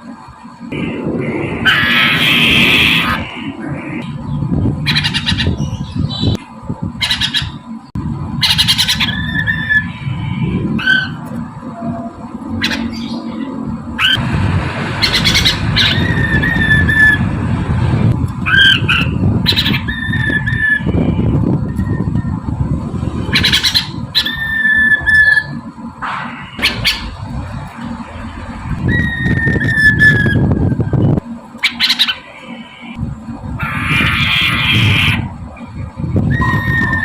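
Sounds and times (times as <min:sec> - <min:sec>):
low background hum: 0:00.0 - 0:37.0
steady low rumble: 0:00.0 - 0:37.0
bird harsh rising squawk: 0:01.2 - 0:04.0, 0:08.4 - 0:11.2, 0:15.0 - 0:17.2, 0:18.5 - 0:20.9, 0:23.3 - 0:25.6, 0:26.2 - 0:27.2, 0:28.8 - 0:30.5, 0:31.6 - 0:33.0, 0:33.6 - 0:35.3.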